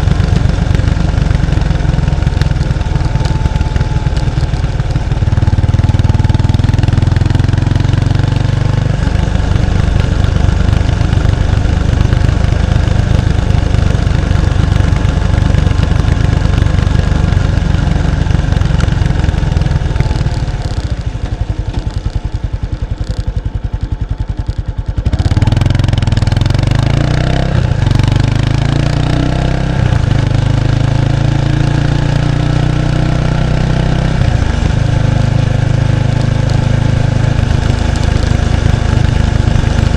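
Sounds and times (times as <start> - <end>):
motorcycle exhaust: 0.0 - 39.9.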